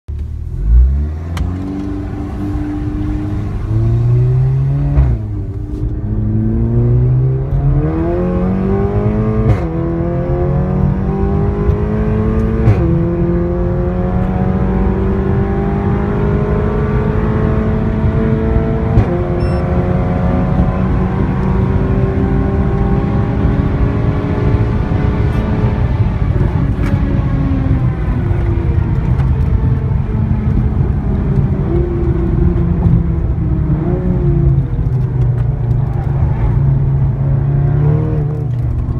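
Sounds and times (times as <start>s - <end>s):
car engine accelerating: 0.1s - 38.9s.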